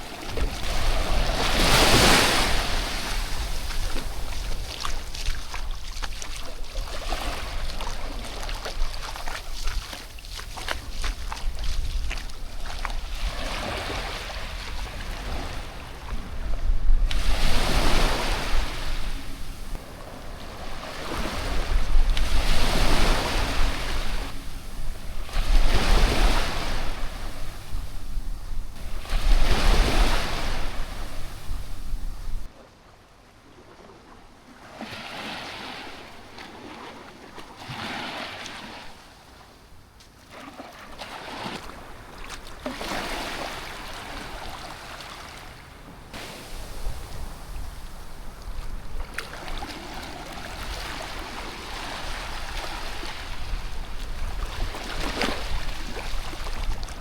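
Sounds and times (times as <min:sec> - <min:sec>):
wind rumbling on microphone: 0:00.0 - 0:32.5, 0:45.6 - 0:57.0
small waves washing onto shore: 0:00.0 - 0:32.6, 0:33.4 - 0:57.0.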